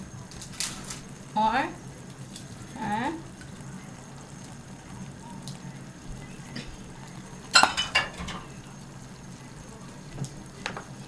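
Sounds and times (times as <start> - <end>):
utensils clinking on pot: 7.5 - 8.7.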